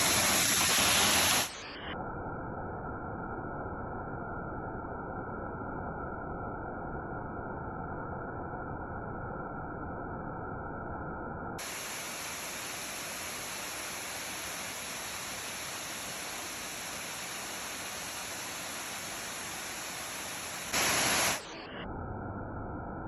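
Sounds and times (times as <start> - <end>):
waterfall rushing: 0.0 - 1.7, 11.6 - 21.7.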